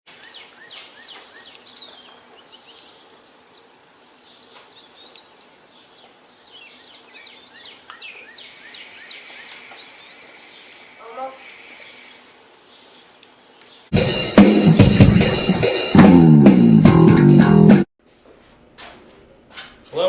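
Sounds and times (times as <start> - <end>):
songbirds chirping: 0.1 - 13.9.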